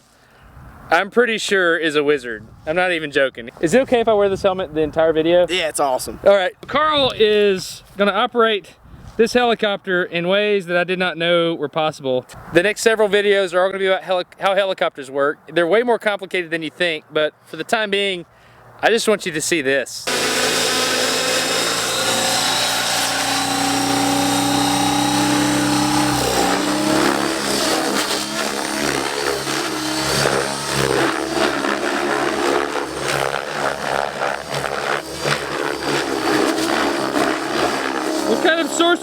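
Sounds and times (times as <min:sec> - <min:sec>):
radio-controlled helicopter motor: 0:20.1 - 0:39.0.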